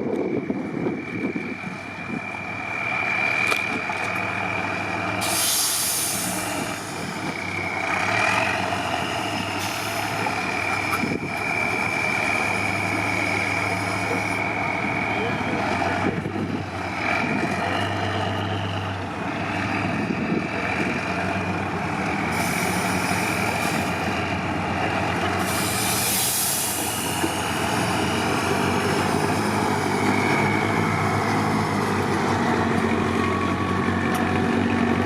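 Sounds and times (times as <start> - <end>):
truck engine running: 0.0 - 35.0
short burst of hiss: 5.2 - 6.5.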